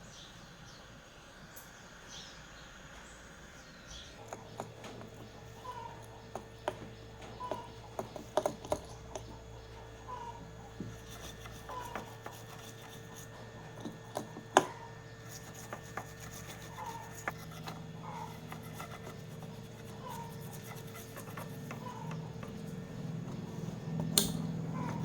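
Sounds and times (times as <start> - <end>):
faint hum: 0.0 - 25.0
light scraping and rubbing: 10.8 - 25.0.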